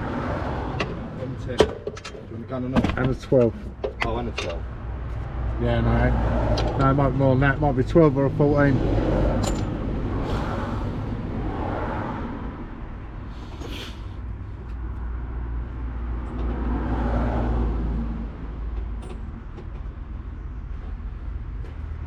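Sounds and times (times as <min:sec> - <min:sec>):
vehicles passing: 0:00.0 - 0:22.0
steady low rumble: 0:02.2 - 0:16.7.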